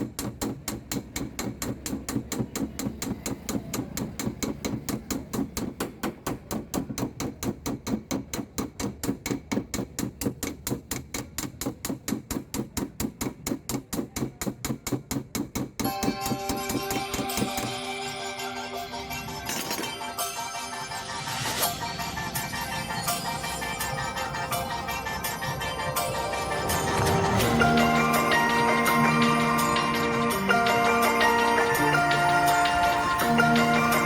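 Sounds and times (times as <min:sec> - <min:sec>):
small hammer tapping steel panel: 0:00.0 - 0:17.8.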